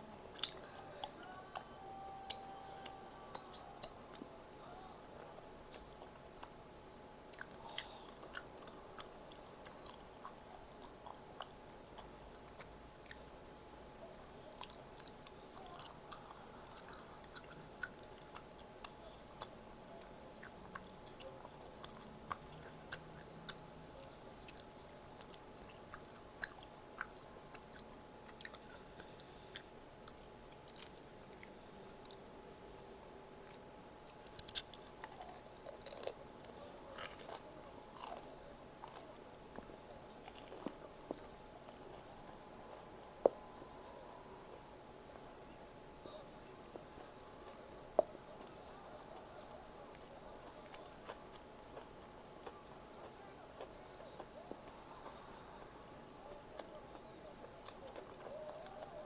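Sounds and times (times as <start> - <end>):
person chewing: 0.0 - 4.2, 7.3 - 13.4, 14.5 - 19.6, 20.2 - 32.3, 33.4 - 44.7, 45.4 - 55.3, 56.4 - 59.0
crunchy bites: 33.5 - 42.0.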